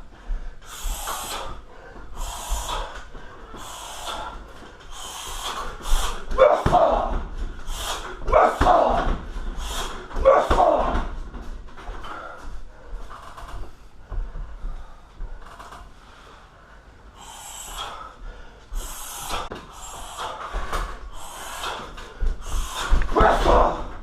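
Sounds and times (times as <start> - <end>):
sharp hissing exhales: 0.6 - 6.3, 7.6 - 8.2, 9.6 - 10.0, 17.2 - 23.1.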